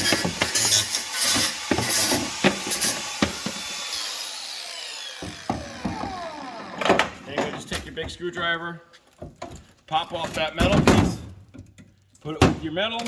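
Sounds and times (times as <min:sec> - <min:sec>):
grinder cutting metal: 0:00.0 - 0:07.2
grinder spinning down whine: 0:00.1 - 0:07.2.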